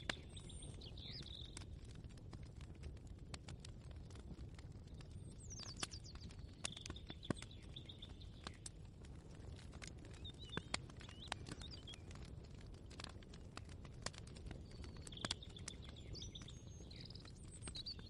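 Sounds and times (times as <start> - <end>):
birds chirping: 0.0 - 1.6, 5.4 - 8.6, 14.6 - 18.0.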